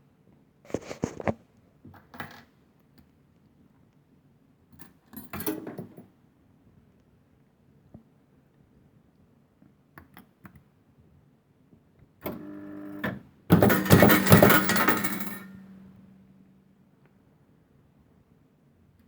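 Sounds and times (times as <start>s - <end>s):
coins clattering into tray: 13.6s - 15.8s.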